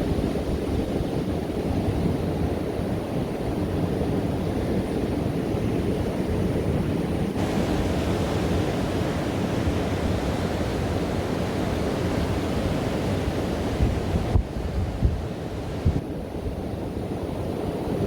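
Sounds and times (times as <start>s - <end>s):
wind buffeting microphone: 0.0s - 18.0s
surf breaking on beach: 7.4s - 16.1s.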